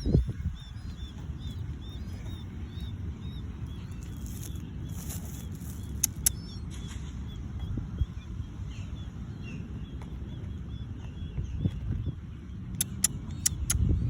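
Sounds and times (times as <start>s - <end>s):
rapid high chirps: 0.0s - 6.8s
low background rumble: 0.0s - 14.0s
sharp clicks: 4.0s - 7.0s, 12.7s - 13.8s.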